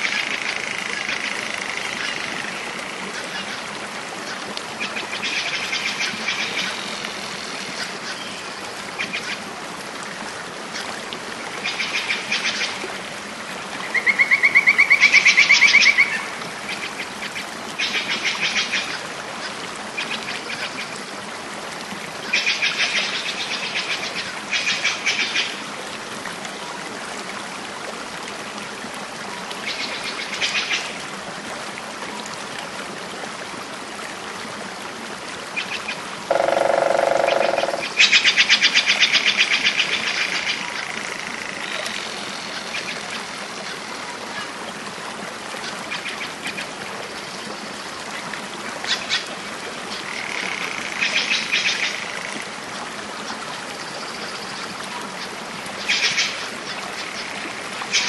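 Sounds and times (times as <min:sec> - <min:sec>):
birds calling in pulsed bursts: 0:36.3 - 0:38.2.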